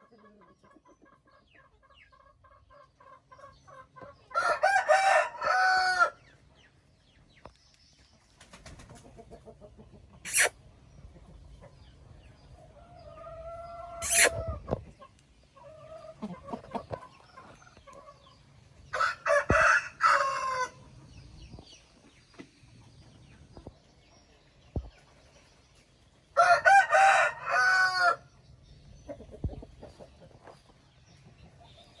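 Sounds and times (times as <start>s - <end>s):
chicken clucking: 0.0s - 7.4s, 8.4s - 28.2s, 28.9s - 32.0s
rooster crowing: 4.4s - 6.2s, 19.0s - 20.8s, 26.4s - 28.2s.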